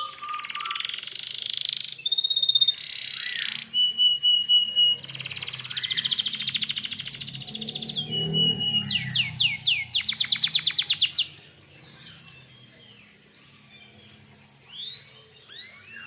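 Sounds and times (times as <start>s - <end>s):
canary singing trills and whistles: 0.0s - 16.0s.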